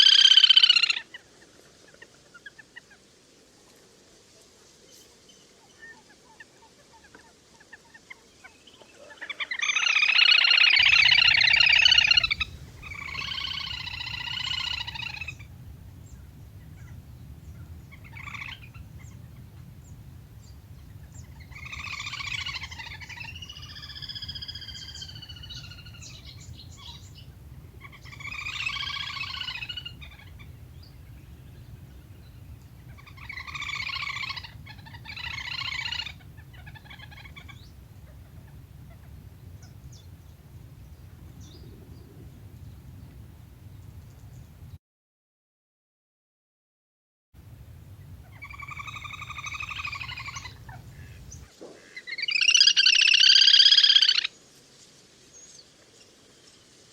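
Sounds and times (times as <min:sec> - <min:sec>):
duck whistling calls: 0:09.6 - 0:17.0, 0:17.6 - 0:40.2, 0:48.0 - 0:51.4, 0:52.2 - 0:54.3
steady low hum: 0:10.8 - 0:44.8, 0:47.4 - 0:51.4.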